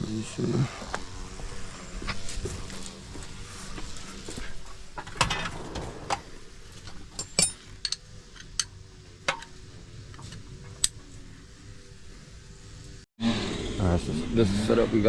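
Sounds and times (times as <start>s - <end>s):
hand tools clinking on metal: 7.1s - 8.7s.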